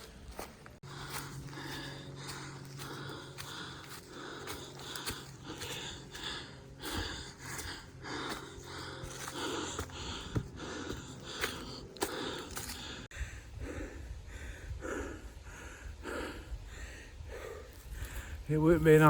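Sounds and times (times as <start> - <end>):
footsteps on trail: 0.0 - 13.2
person breathing hard: 0.0 - 18.5.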